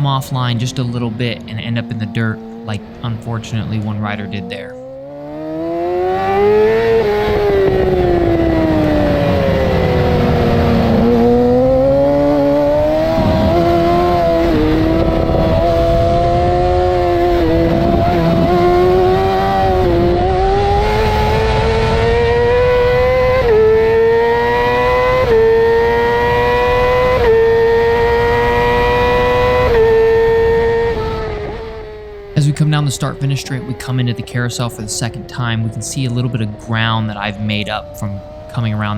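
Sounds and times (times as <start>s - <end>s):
gear upshifts: 0.0s - 38.9s
motorcycle engine at racing revs: 0.0s - 38.9s
wind rush: 7.0s - 23.6s.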